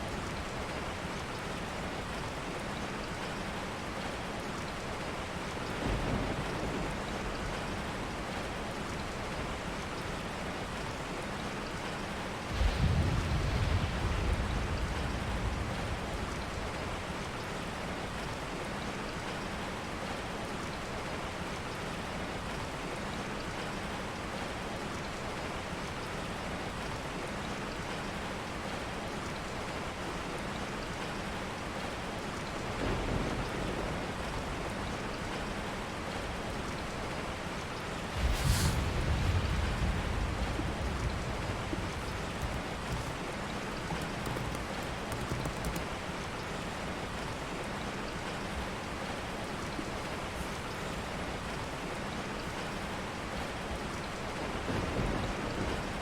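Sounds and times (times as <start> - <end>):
steady rain falling: 0.0 - 56.0
thunder rumbling: 12.5 - 17.3, 37.3 - 45.0, 54.3 - 56.0.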